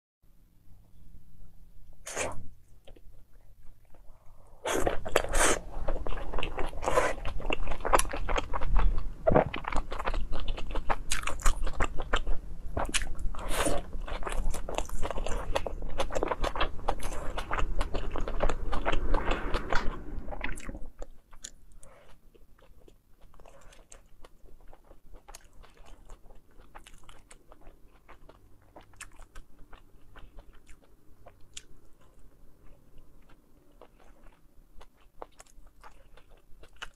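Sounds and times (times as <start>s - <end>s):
crackly chewing: 1.9s - 36.9s.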